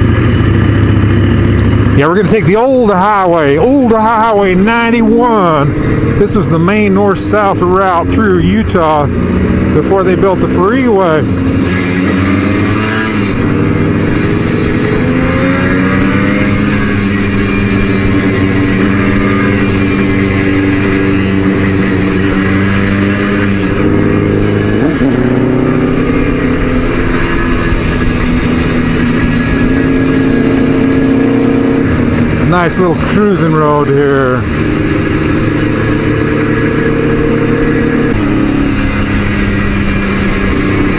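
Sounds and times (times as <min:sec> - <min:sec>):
motorcycle engine cruising: 0:00.0 - 0:40.9
wind rushing: 0:11.7 - 0:33.1.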